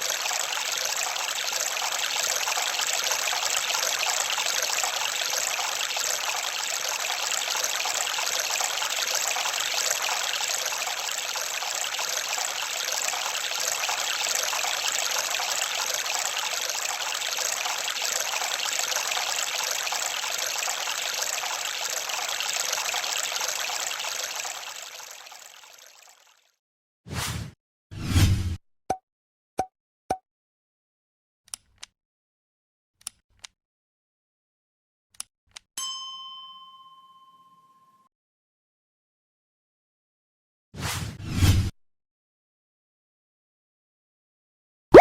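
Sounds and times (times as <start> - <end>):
trickling water: 0.0 - 26.6.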